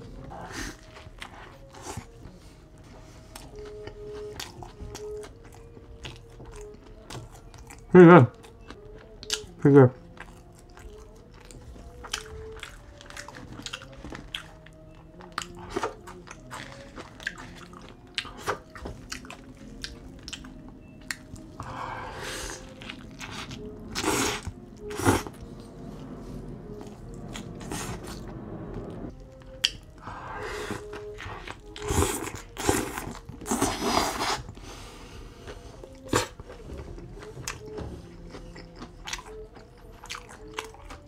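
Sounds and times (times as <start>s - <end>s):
chewing and biting food: 0.2s - 21.8s, 29.1s - 34.6s, 35.4s - 41.0s.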